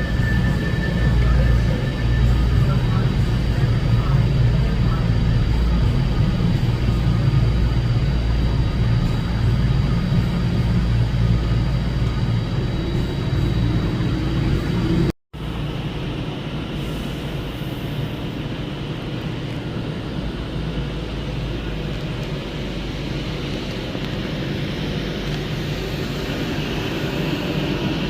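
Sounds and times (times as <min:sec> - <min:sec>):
faint high whine: 0:00.0 - 0:18.5
rushing noise: 0:00.0 - 0:28.0
train rumbling: 0:00.0 - 0:28.0.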